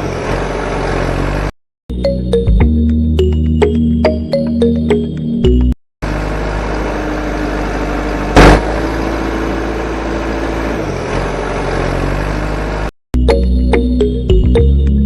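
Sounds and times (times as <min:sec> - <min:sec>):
loud thump: 0:08.4 - 0:08.7.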